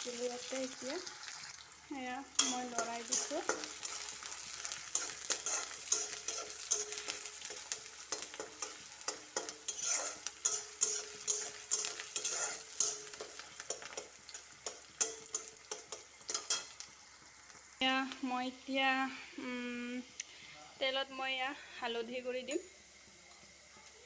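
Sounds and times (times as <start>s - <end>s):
onions sizzling in oil: 0.0s - 24.0s
spatula scraping pan: 2.4s - 16.7s.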